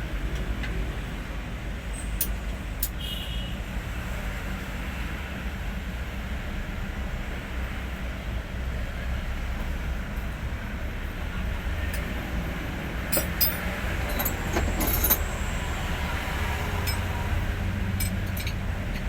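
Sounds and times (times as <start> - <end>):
diesel truck engine running: 6.3 - 19.0
light metallic clinks: 13.1 - 15.4, 16.8 - 19.0.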